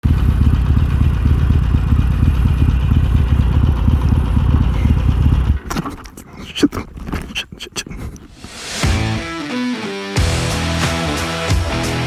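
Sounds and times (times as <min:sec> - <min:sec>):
motorcycle engine idling: 0:00.0 - 0:05.7.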